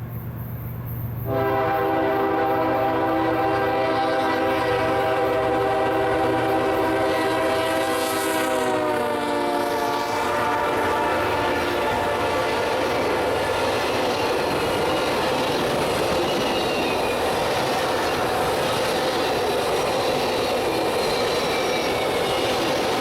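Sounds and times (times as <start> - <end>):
locomotive horn chord: 1.3 - 12.9.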